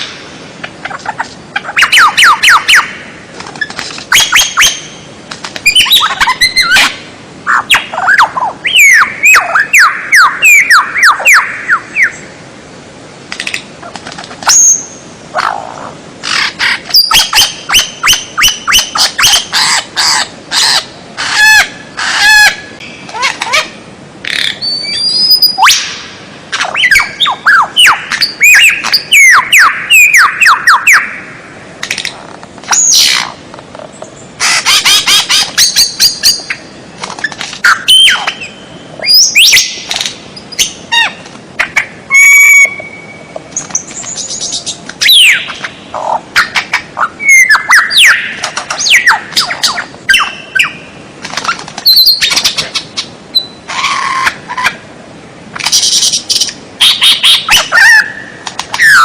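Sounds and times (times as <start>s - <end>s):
songbird chattering and trilling: 0.0s - 12.3s, 13.4s - 26.0s, 26.6s - 31.2s
bird whistles: 24.4s - 25.9s, 26.6s - 31.1s, 42.1s - 43.2s.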